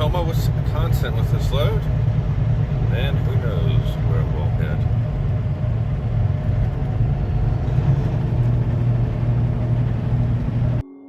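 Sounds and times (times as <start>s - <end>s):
truck engine and road rumble: 0.0s - 10.8s.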